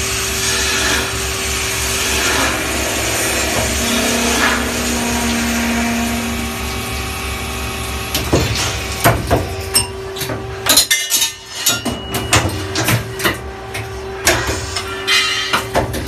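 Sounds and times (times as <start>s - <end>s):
lathe machine hum: 0.0s - 9.7s.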